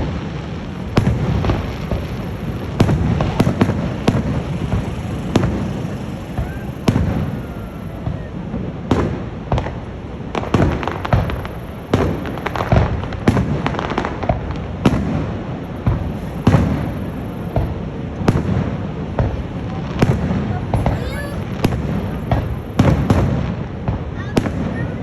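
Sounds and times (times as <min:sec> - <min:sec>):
steady low rumble: 0:00.0 - 0:24.1
fireworks bangs: 0:00.0 - 0:25.0
fireworks crackling: 0:00.0 - 0:25.0.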